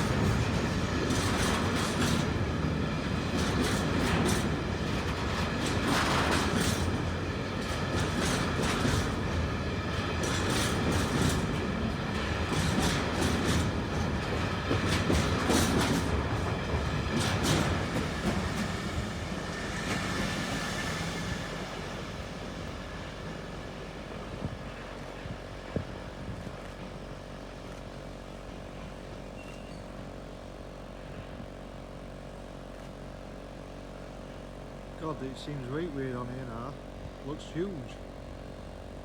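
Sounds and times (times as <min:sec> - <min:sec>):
train wheels clicking over rail joints: 0:00.0 - 0:22.1
low steady train hum: 0:00.0 - 0:39.0.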